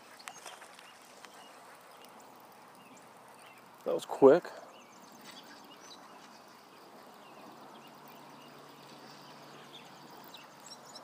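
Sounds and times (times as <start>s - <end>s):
outdoor background hiss: 0.0s - 11.0s
faint bird chirps: 4.5s - 11.0s.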